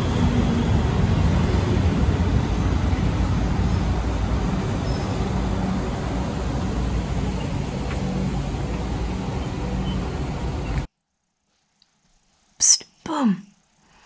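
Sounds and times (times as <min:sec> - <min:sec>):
electric train rumble and hum: 0:00.0 - 0:10.9.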